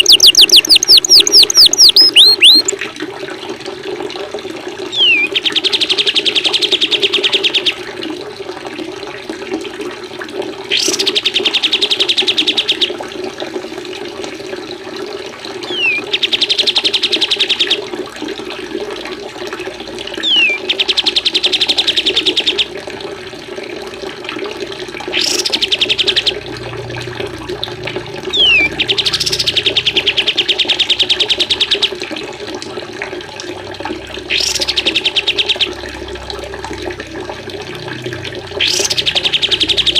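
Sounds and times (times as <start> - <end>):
songbird whistle and trill: 0.0 - 2.7, 5.0 - 7.7, 10.8 - 12.8, 15.7 - 17.8, 20.2 - 22.7, 25.2 - 26.4, 28.3 - 31.8, 34.3 - 35.6, 38.6 - 39.9
running water: 0.0 - 39.9.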